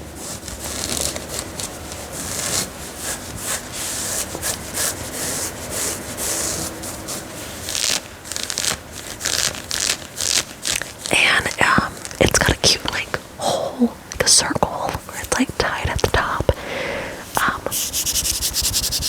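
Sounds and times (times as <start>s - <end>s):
fabric being scratched by hand: 0.0s - 13.2s, 17.2s - 19.0s.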